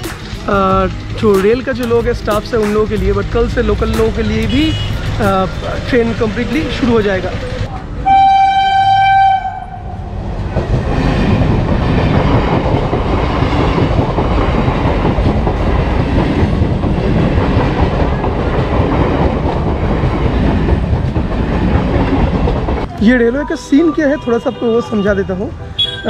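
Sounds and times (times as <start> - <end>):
train wheels over rails: 0.0 - 9.0, 9.7 - 23.0
train horn: 8.0 - 10.0.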